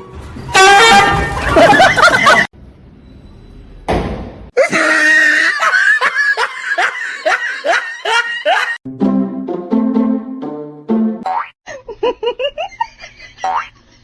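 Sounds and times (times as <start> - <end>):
person laughing: 1.6 - 2.5, 4.6 - 8.8, 11.7 - 14.0.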